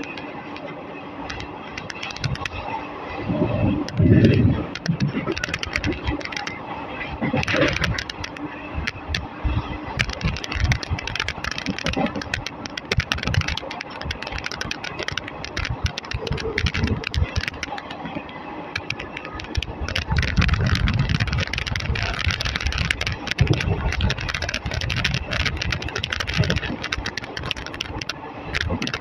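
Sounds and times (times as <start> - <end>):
wheel clicks and rattles: 0.0 - 2.7, 3.8 - 29.0
train coach rumbling on track: 0.0 - 29.0.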